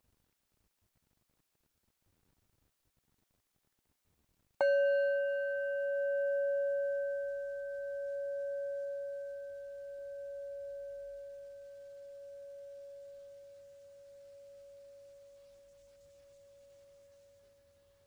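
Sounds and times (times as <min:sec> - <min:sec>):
meditation bell ringing: 0:04.6 - 0:15.4.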